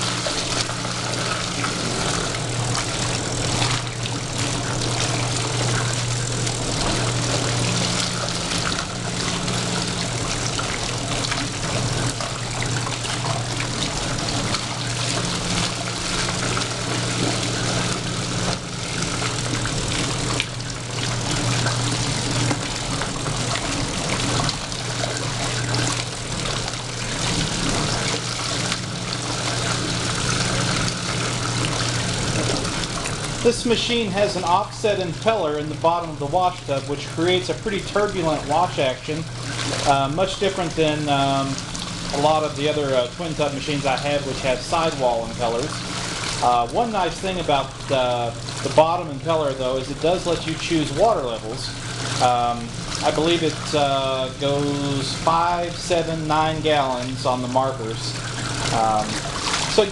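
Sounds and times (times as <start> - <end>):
pump squirting water: 0.0 - 59.9
washing machine motor hum: 0.0 - 59.9
water churning and splashing: 0.0 - 59.9.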